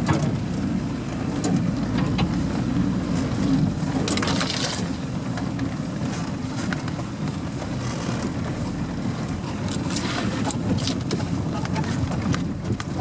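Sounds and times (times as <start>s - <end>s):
vehicle engine rumbling: 0.0s - 13.0s
clicks and rattles: 4.0s - 5.5s.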